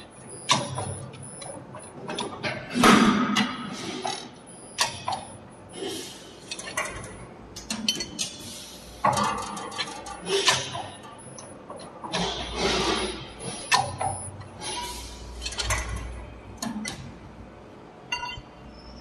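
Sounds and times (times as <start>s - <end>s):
machine clicks and knocks: 0.0s - 5.4s, 6.5s - 8.4s, 9.0s - 12.5s, 15.4s - 17.2s.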